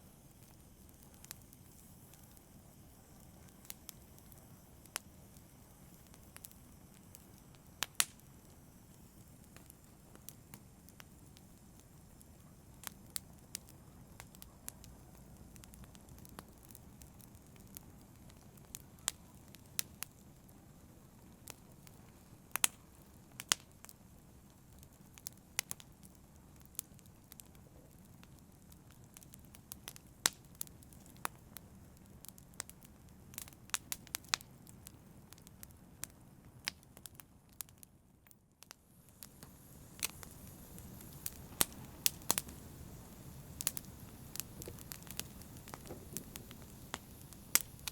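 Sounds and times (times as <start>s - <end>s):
campfire crackling and popping: 0.0s - 47.9s
low rush of flame: 38.6s - 47.9s.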